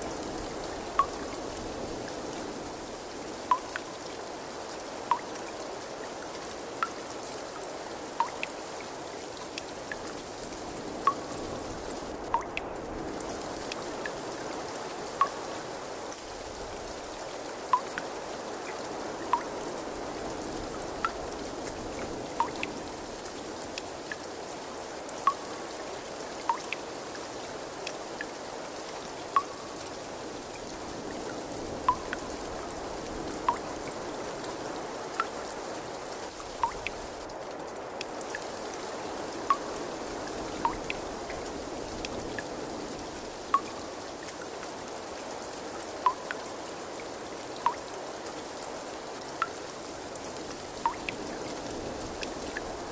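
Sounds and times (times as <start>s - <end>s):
trickling water: 0.0s - 52.9s
water drips plinking: 0.8s - 1.4s, 3.4s - 4.2s, 5.0s - 5.5s, 6.8s - 10.3s, 11.0s - 12.7s, 15.1s - 19.6s, 20.6s - 21.4s, 22.0s - 22.8s, 25.2s - 25.7s, 26.4s - 26.9s, 29.2s - 32.7s, 33.4s - 34.0s, 35.1s - 35.4s, 36.3s - 37.4s, 39.5s - 42.5s, 43.3s - 44.6s, 46.0s - 46.6s, 47.6s - 47.9s, 49.3s - 49.7s, 50.8s - 51.4s.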